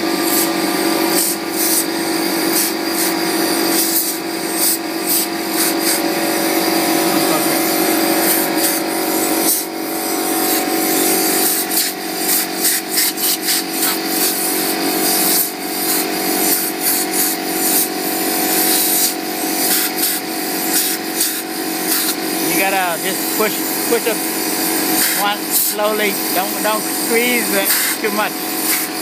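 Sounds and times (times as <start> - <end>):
compressed air hissing bursts: 0.1 - 29.0
steady hum: 4.4 - 13.0, 20.6 - 29.0.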